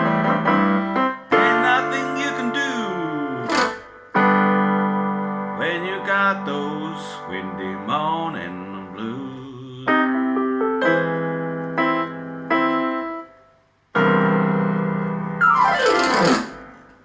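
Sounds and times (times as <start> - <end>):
blues piano chords and run: 0.0 - 17.0.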